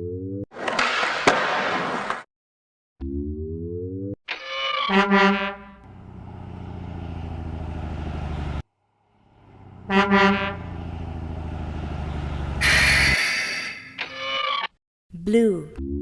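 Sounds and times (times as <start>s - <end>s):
truck horn honk: 4.9s - 6.0s, 9.4s - 11.2s, 12.1s - 13.7s
truck engine rumble: 5.8s - 13.6s.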